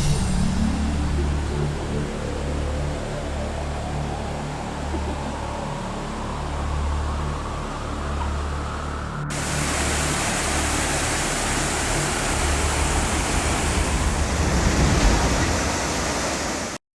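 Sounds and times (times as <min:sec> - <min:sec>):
dull hum: 0:00.0 - 0:16.8
waterfall rushing: 0:09.3 - 0:16.8.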